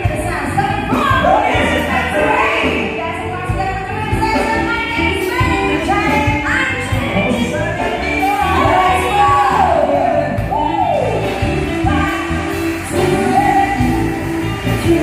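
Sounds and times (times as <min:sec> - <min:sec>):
live band playing: 0:00.0 - 0:15.0
person singing: 0:06.9 - 0:15.0.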